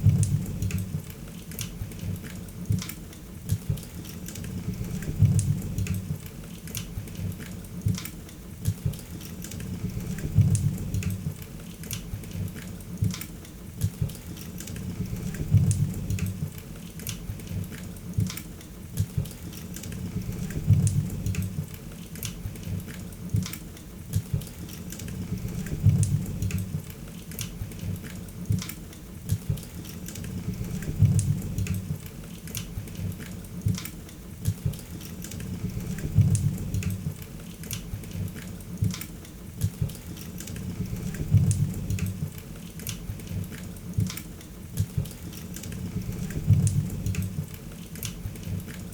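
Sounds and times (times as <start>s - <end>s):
low rumble of flames: 0.0s - 1.1s, 4.5s - 6.3s, 9.7s - 11.4s, 14.8s - 16.6s, 19.9s - 21.8s, 25.1s - 26.9s, 30.3s - 32.1s, 35.4s - 37.2s, 40.6s - 42.4s, 45.8s - 47.5s.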